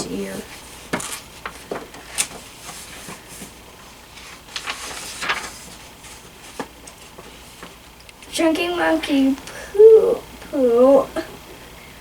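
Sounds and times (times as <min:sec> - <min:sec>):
book pages rustling: 0:00.1 - 0:07.9.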